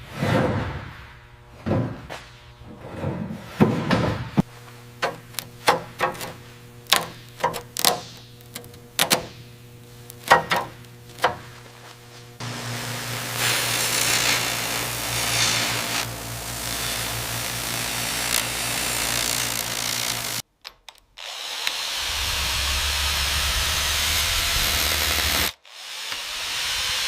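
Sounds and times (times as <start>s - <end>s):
faint steady hum: 4.4s - 18.9s
power tool running: 4.6s - 20.4s, 21.2s - 27.0s.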